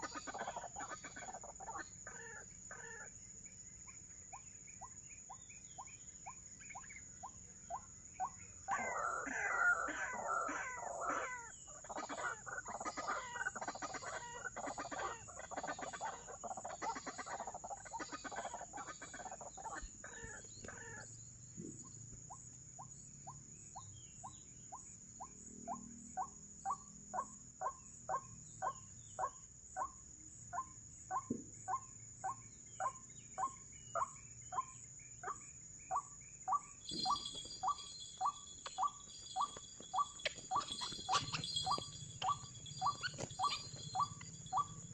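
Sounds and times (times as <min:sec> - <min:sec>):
waterhen calling: 0:36.8 - 0:44.9.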